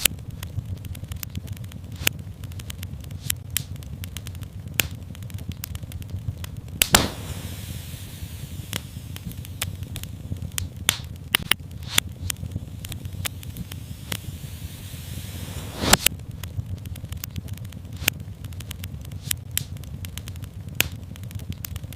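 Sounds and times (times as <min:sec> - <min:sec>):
fire crackling and popping: 0:00.0 - 0:21.9
low rumble of flames: 0:00.0 - 0:21.9.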